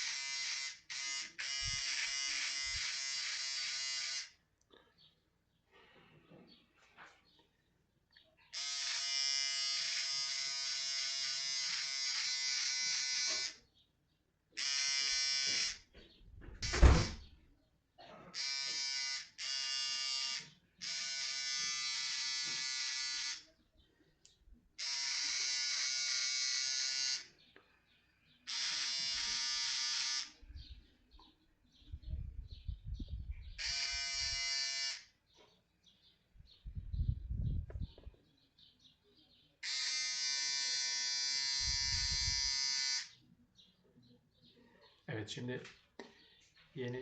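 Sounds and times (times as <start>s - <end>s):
electric shaver buzzing: 0.0s - 4.4s, 8.6s - 13.6s, 14.6s - 15.9s, 18.4s - 23.5s, 24.8s - 27.3s, 28.5s - 30.4s, 33.6s - 35.1s, 39.6s - 43.2s.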